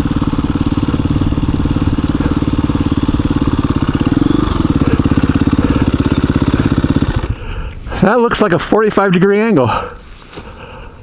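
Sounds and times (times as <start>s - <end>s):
dirt bike engine idling: 0.0s - 8.7s.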